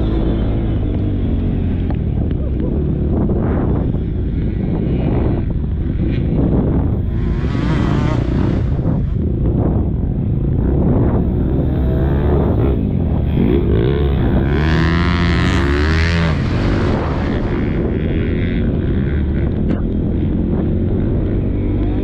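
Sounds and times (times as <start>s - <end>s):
motocross bike engine revving: 4.4s - 9.8s, 10.7s - 21.8s.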